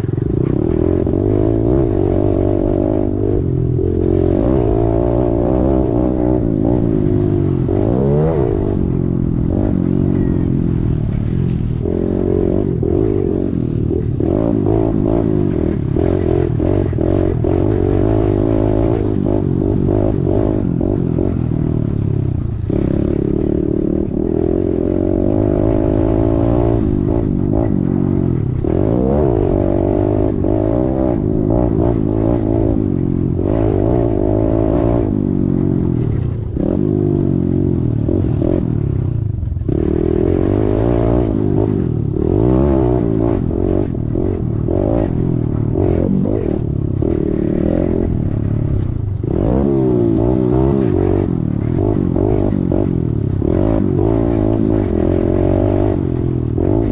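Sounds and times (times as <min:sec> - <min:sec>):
small engine revving: 0:22.5 - 0:56.9.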